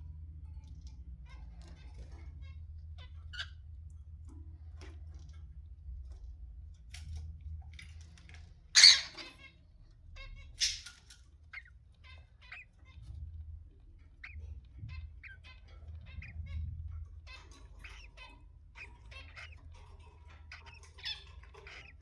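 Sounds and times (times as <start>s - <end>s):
low steady hum: 0.0s - 22.0s
cockatiel squawking: 8.7s - 9.5s, 14.1s - 16.6s, 17.2s - 22.0s
faint bird chirps: 8.8s - 13.3s, 14.0s - 22.0s.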